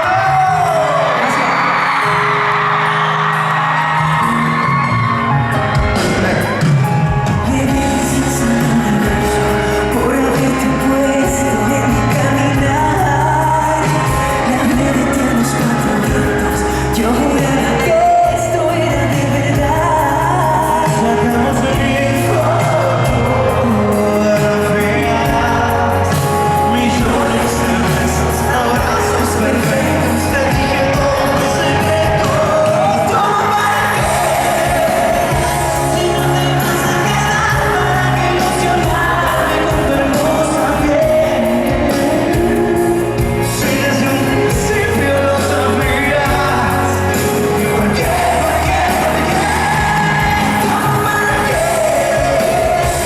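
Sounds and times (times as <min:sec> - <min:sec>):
band accompaniment: 0:00.0 - 0:53.0
men singing pop song: 0:05.6 - 0:53.0.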